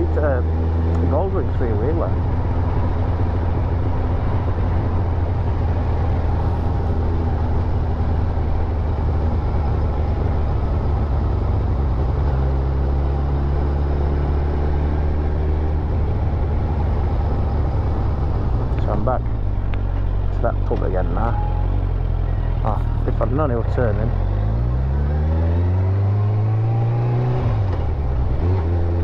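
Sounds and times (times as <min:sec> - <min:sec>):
motorcycle engine running: 0:01.7 - 0:13.5
wind rumble: 0:02.0 - 0:23.9.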